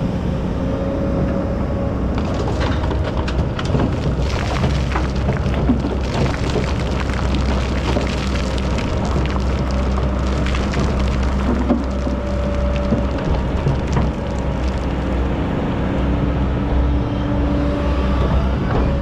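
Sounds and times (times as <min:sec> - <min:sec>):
excavator diesel engine running: 0:00.6 - 0:19.0
clicks and knocks of stones: 0:02.1 - 0:15.2.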